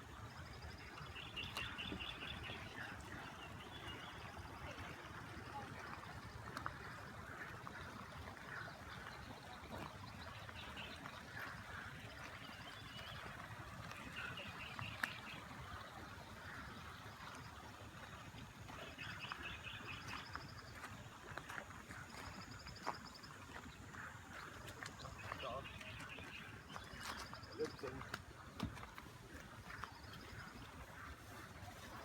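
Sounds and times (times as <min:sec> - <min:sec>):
small birds chirping: 0:18.8 - 0:28.6.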